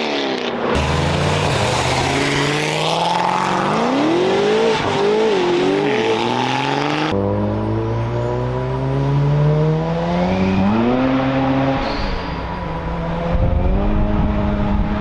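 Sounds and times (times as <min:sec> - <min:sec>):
car engine accelerating hard: 0:00.7 - 0:12.2.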